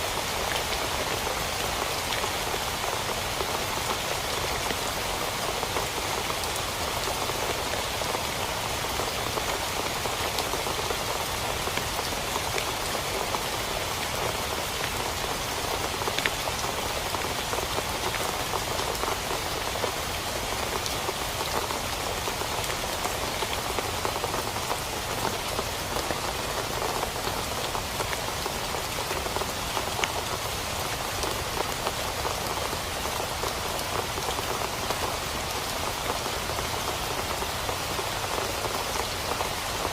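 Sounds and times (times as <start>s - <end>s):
rain falling on a tent: 0.0s - 39.9s.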